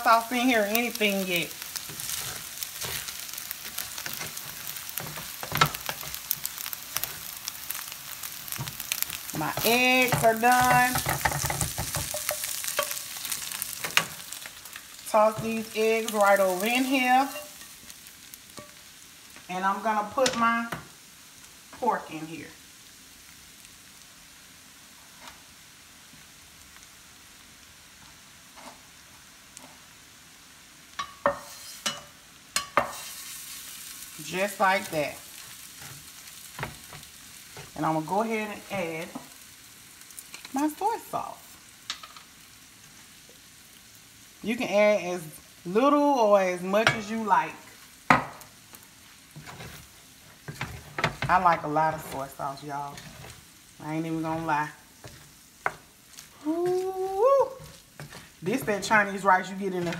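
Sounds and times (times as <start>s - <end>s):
rice sizzling in a skillet: 0.0s - 59.9s
wooden spatula scraping: 0.6s - 7.8s, 8.5s - 17.7s, 31.3s - 32.0s, 49.3s - 59.9s.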